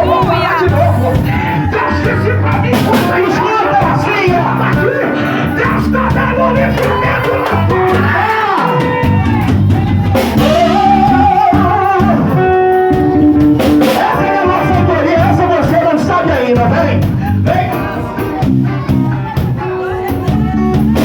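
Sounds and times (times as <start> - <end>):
wavering singing voice: 0.0 - 12.5
drum kit: 0.0 - 21.0
guitar: 0.0 - 21.0
worship band music: 0.0 - 21.0.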